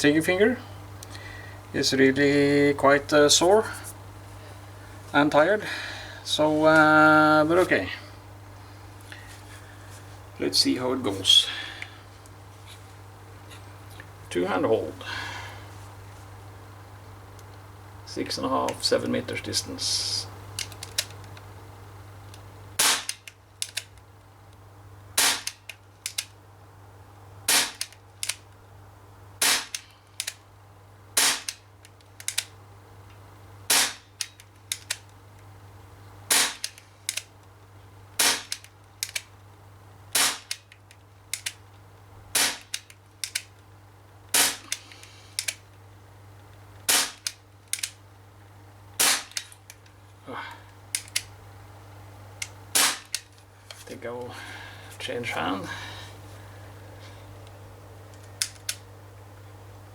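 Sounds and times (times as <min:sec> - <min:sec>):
bb pistol pops: 0:22.8 - 0:23.9, 0:25.2 - 0:26.3, 0:27.5 - 0:28.4, 0:29.4 - 0:30.4, 0:31.2 - 0:31.6, 0:33.7 - 0:35.0, 0:36.3 - 0:37.3, 0:38.2 - 0:39.3, 0:40.1 - 0:40.8, 0:42.3 - 0:43.5, 0:44.3 - 0:44.8, 0:46.9 - 0:48.0, 0:49.0 - 0:49.5, 0:52.7 - 0:53.2.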